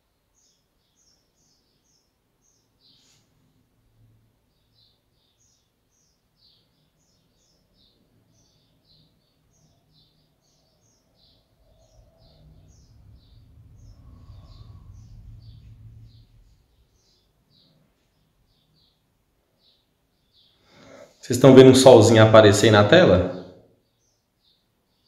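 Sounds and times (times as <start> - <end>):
small birds chirping: 0.0 - 25.0
low rumble: 11.5 - 17.5.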